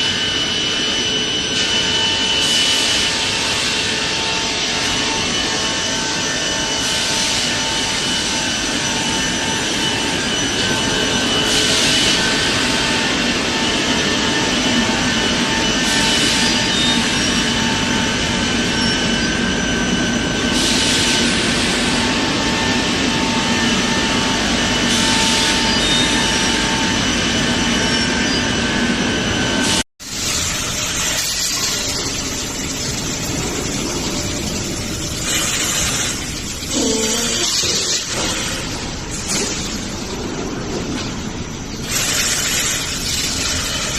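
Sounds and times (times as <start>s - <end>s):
machine hiss: 0.0s - 13.1s, 30.0s - 40.4s, 41.6s - 43.9s
factory machinery humming: 0.0s - 43.9s
quieter machine noise: 0.0s - 43.9s.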